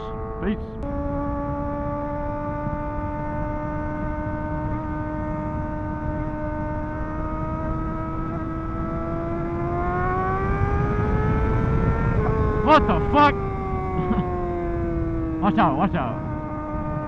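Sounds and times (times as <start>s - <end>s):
motorcycle engine cruising: 0.0s - 17.0s
wind and road rumble: 0.0s - 17.0s.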